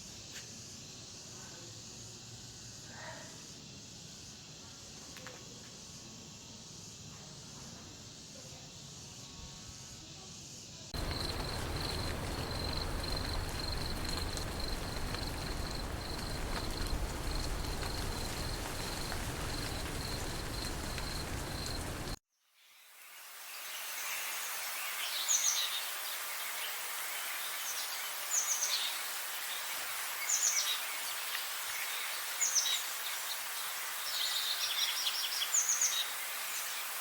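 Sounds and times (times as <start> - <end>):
insect chirping: 0.0 - 22.2
steady background hiss: 0.0 - 22.2, 22.8 - 37.0.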